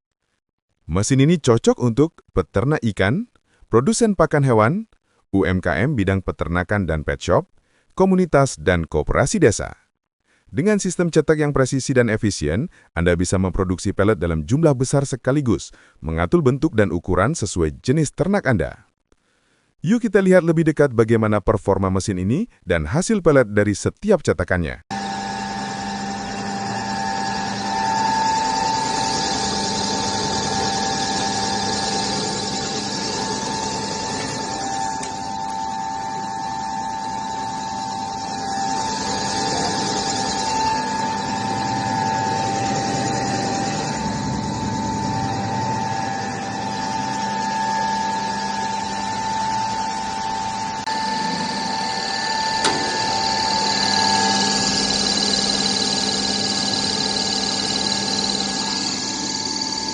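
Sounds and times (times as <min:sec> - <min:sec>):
machine humming and whining: 0:24.9 - 0:59.9.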